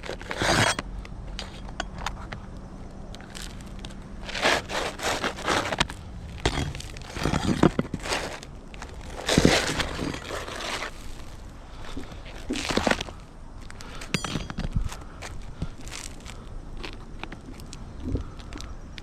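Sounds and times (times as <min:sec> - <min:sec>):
roof shingles scraping and crackling: 0:00.0 - 0:00.8, 0:03.2 - 0:14.1, 0:14.9 - 0:17.8.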